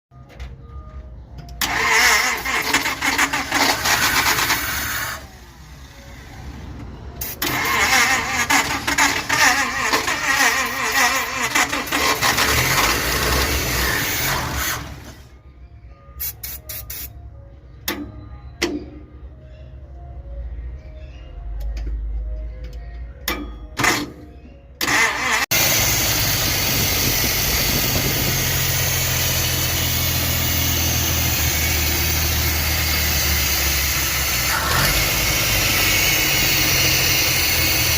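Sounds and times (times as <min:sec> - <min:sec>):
faint background music: 0:00.1 - 0:11.7, 0:14.9 - 0:25.4
pickup truck engine running: 0:24.9 - 0:37.9.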